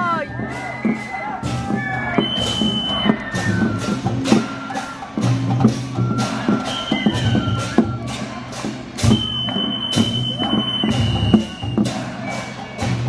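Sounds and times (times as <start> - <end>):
percussion strikes: 0.0 - 13.0.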